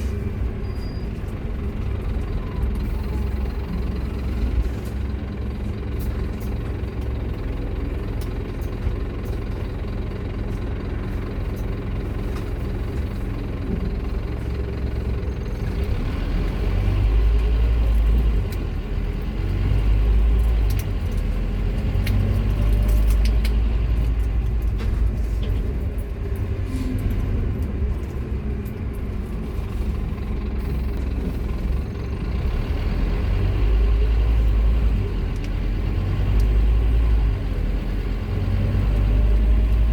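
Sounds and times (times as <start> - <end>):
bus diesel engine rumbling: 0.0 - 39.9.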